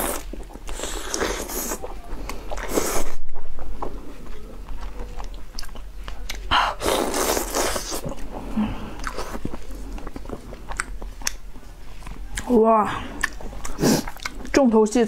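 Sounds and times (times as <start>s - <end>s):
person chewing and sucking: 0.0s - 14.6s.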